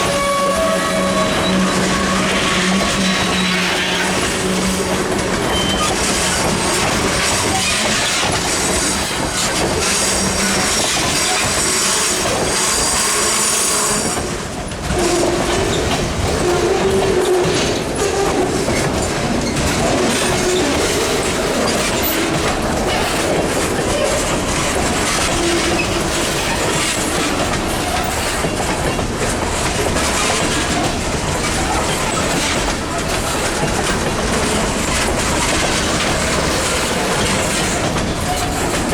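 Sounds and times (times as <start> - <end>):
high wheel squeal: 0.0 - 8.2
freight train wheels clicking: 0.0 - 38.9.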